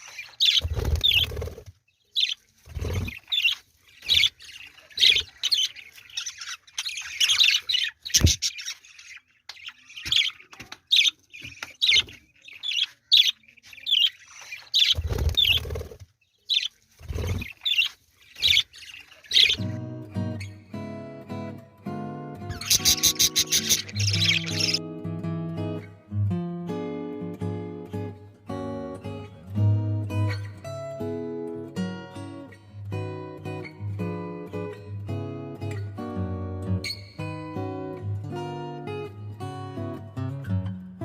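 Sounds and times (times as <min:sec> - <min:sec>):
budgerigars chirping: 0:00.0 - 0:19.8, 0:22.5 - 0:24.8
acoustic guitar music: 0:19.5 - 0:41.0.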